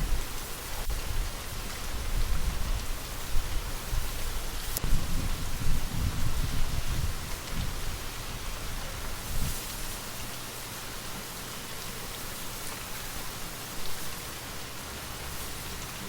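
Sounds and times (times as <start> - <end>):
low wind rumble: 0.0 - 9.6
steady rain: 0.0 - 16.0.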